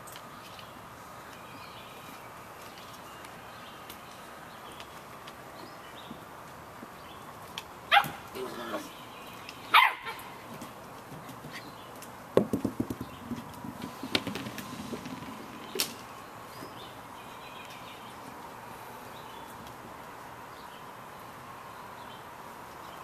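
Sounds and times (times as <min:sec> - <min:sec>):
puppies knocking and rattling: 0:12.4 - 0:15.9.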